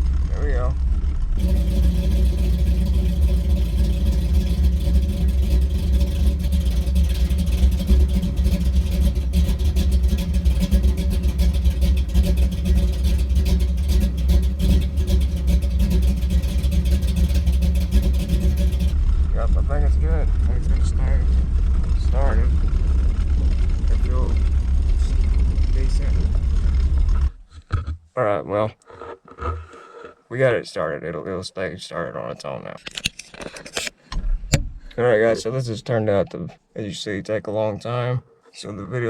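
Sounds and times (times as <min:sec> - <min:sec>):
engine idling lopey and choppy: 0:00.0 - 0:27.4.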